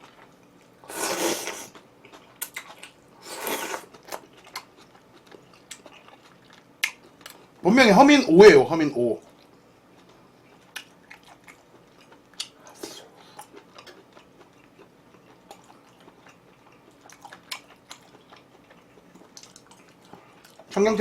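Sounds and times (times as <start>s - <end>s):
person chewing food: 0.0s - 7.5s, 9.2s - 20.7s.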